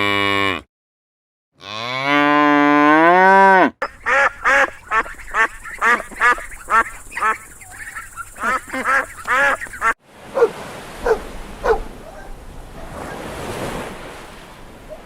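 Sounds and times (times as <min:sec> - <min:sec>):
cow mooing: 0:00.0 - 0:00.7, 0:01.6 - 0:03.8
waterfowl calling: 0:03.8 - 0:13.3.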